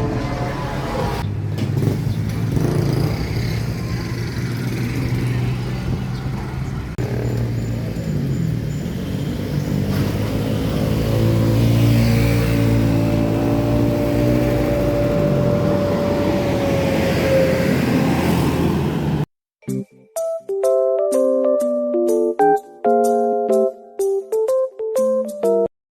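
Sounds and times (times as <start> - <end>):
boat engine humming: 0.0 - 1.4, 12.8 - 19.2.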